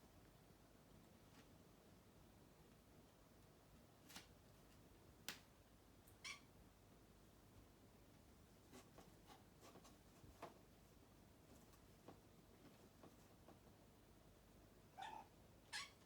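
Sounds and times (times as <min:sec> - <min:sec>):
kitten making faint calls: 0:06.2 - 0:06.5, 0:15.0 - 0:16.0.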